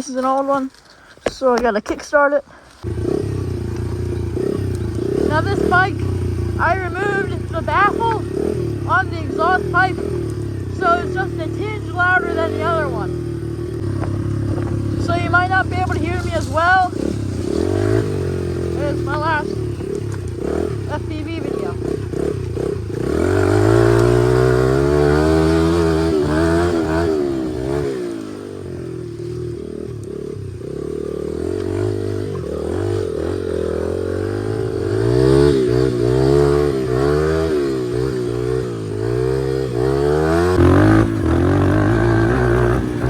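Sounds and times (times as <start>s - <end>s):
motorcycle engine revving: 2.6s - 43.0s.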